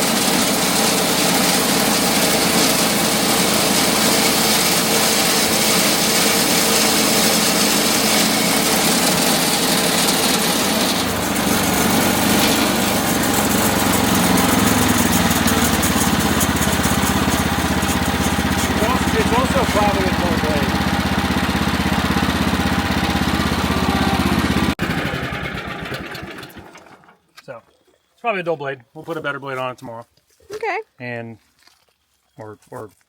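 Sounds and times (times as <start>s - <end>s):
band blade cutting log: 0.0s - 23.3s
sawmill engine running: 0.0s - 26.9s.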